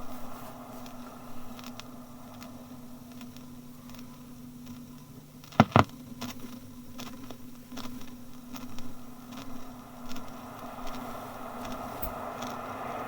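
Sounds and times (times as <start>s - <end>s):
faint ticks: 0.8s - 12.8s
train rumble: 8.9s - 13.0s.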